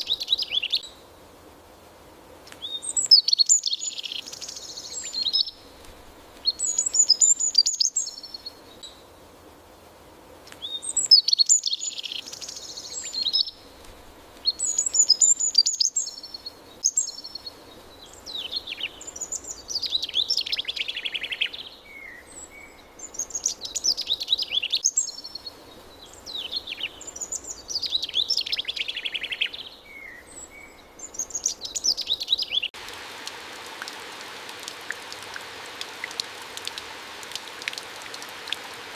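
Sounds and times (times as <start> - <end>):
songbirds singing trills: 0.0 - 1.0, 2.5 - 9.1, 10.5 - 32.8
faint background hiss: 0.0 - 38.9.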